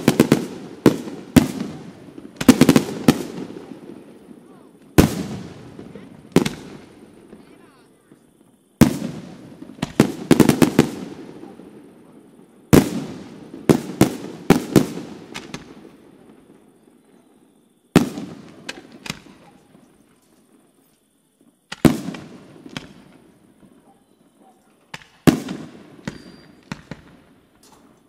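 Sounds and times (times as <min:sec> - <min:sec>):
firework shells bursting: 0:21.7 - 0:23.3.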